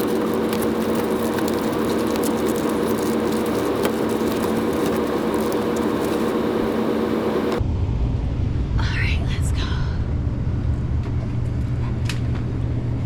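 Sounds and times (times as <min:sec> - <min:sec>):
air filter crackling and rustling: 0:00.0 - 0:07.6
air handling unit humming: 0:00.0 - 0:07.6.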